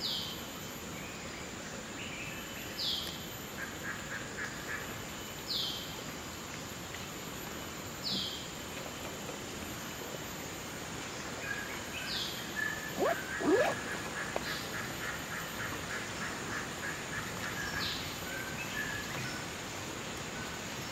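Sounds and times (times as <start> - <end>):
bird rapid short notes: 13.0 - 13.8
loud downward-sliding bird calls: 13.0 - 13.9.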